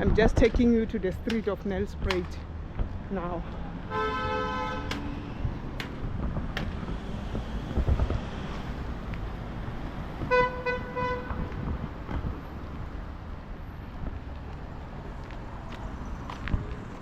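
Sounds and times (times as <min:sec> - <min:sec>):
street traffic rumble: 0:00.0 - 0:17.0
car horn beeps: 0:03.9 - 0:05.0, 0:10.3 - 0:11.5.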